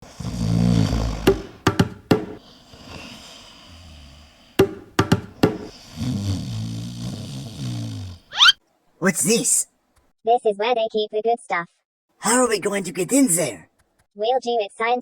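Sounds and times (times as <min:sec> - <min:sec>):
dog snoring: 0:00.0 - 0:08.3.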